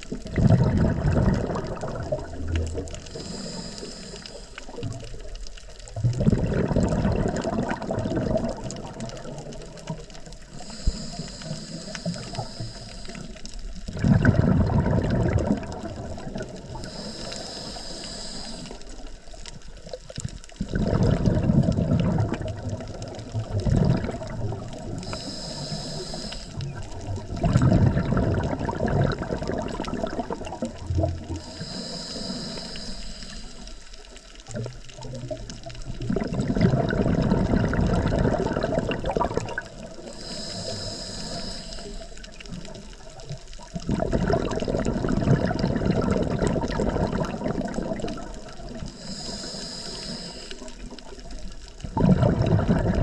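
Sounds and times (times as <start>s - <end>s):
exhaled bubbles gurgling: 0.0s - 53.0s
regulator inhale hiss: 3.0s - 5.0s, 10.4s - 13.7s, 16.3s - 19.4s, 24.8s - 26.9s, 31.2s - 34.2s, 39.9s - 42.7s, 48.8s - 51.4s.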